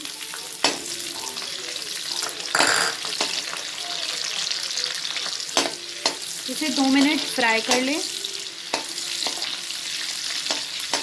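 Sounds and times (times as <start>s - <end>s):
chillies sizzling in hot oil: 0.0s - 11.0s
metal spoon knocking against pan: 2.6s - 3.0s.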